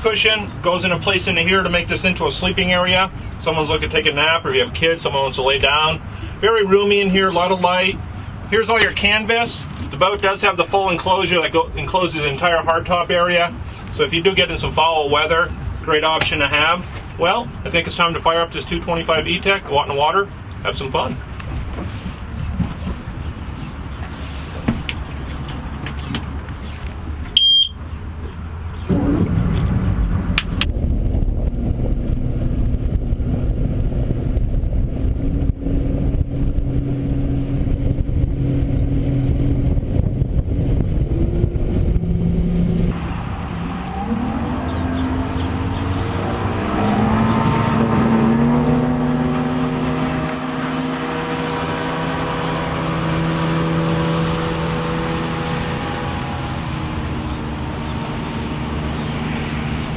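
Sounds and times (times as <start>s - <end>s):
short beep: 27.4s - 27.8s
outboard motor running: 30.6s - 42.9s, 47.3s - 59.9s.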